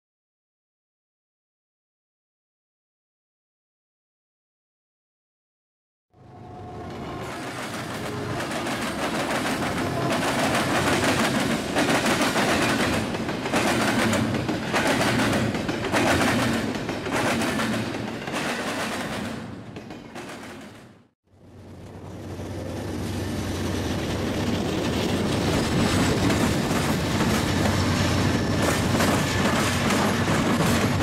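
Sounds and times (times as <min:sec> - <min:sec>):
train wheels clattering on rails: 0:07.1 - 0:21.0, 0:22.7 - 0:31.0.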